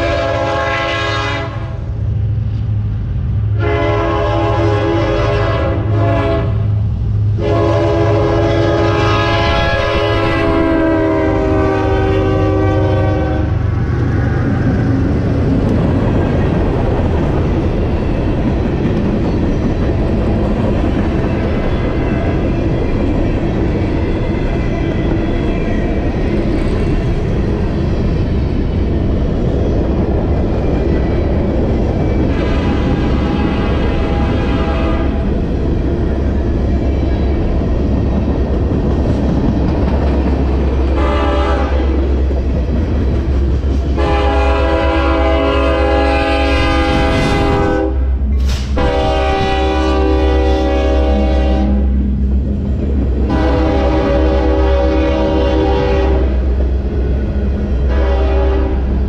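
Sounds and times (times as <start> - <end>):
locomotive air horn blasts: 0.0 - 1.8, 3.6 - 6.7, 7.4 - 13.6, 32.3 - 35.2, 41.0 - 41.9, 44.0 - 52.0, 53.2 - 56.4, 57.9 - 58.9
locomotive engines rumbling: 0.0 - 59.0
wheels on rail: 0.0 - 59.0.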